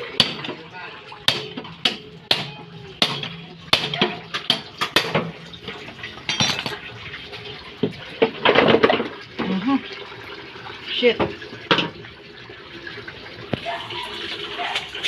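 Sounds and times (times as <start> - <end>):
metallic knocks and clanks: 1.3 - 6.8.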